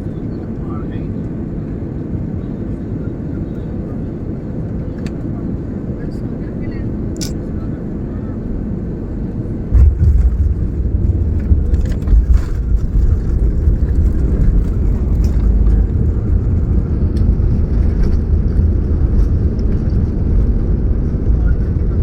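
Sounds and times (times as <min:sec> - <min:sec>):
airliner cabin noise: 0:00.0 - 0:22.0
plane touching down and rolling: 0:09.3 - 0:22.0.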